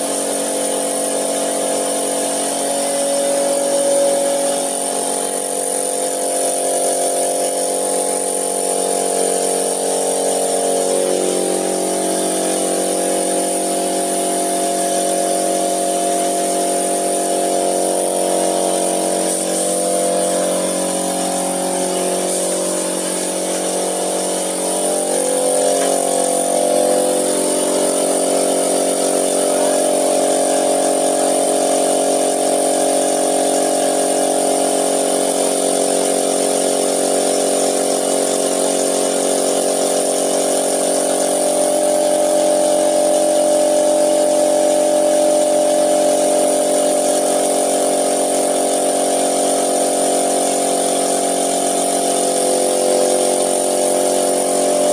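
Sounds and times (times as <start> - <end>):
machine motor humming: 0.0 - 32.6.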